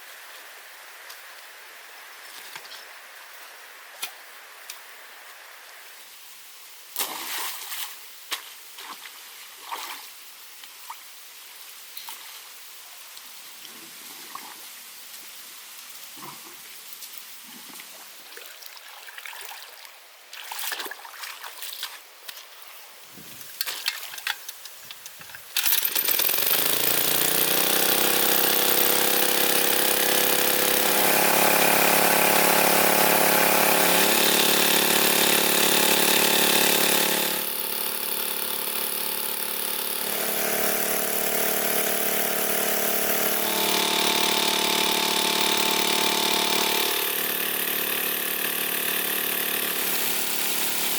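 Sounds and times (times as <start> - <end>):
engine starting and running: 25.6 - 50.9.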